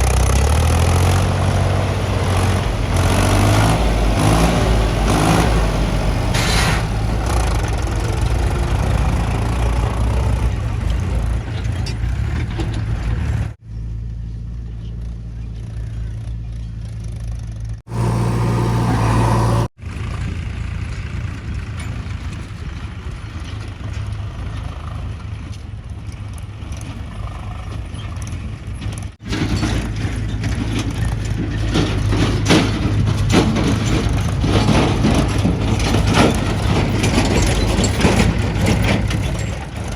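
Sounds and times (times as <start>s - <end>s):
heavy diesel machinery engines: 0.0s - 13.6s, 17.9s - 39.9s.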